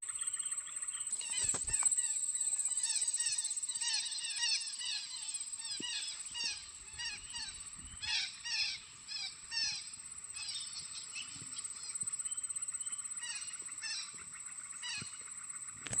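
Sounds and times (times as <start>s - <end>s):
parakeets calling: 0.1s - 11.9s.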